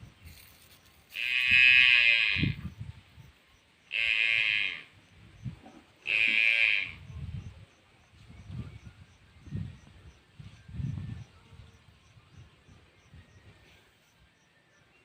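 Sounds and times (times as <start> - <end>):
buffalo calf bawling: 6.0 - 7.0.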